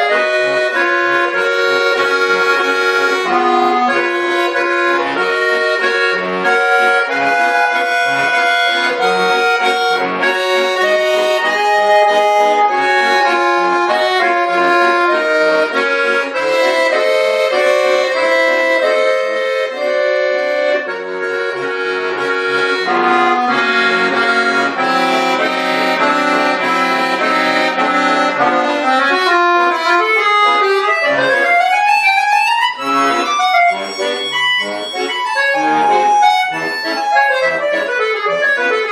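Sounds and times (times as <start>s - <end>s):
button accordion playing: 0.0s - 38.9s.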